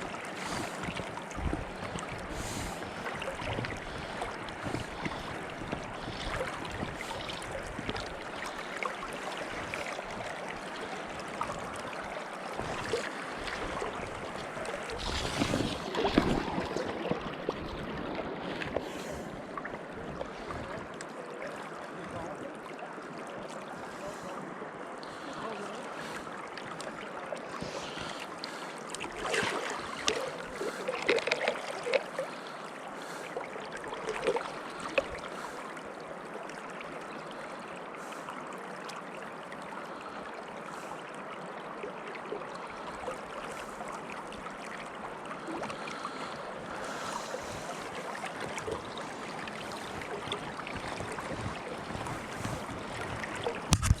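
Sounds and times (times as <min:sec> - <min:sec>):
river water rushing: 0:00.0 - 0:22.2, 0:22.8 - 0:54.0
splashing and knocking: 0:15.0 - 0:17.7, 0:49.7 - 0:54.0.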